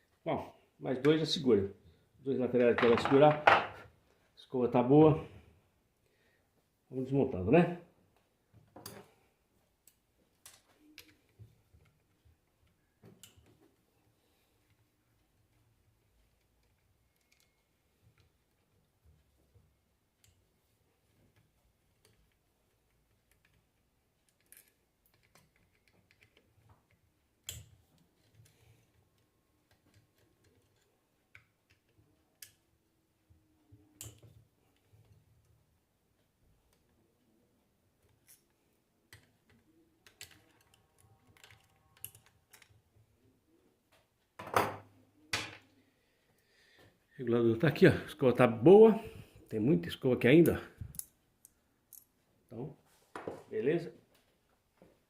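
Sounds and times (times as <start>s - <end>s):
metal parts and tools clicking: 16.2s - 18.7s, 22.0s - 29.0s, 38.0s - 42.8s.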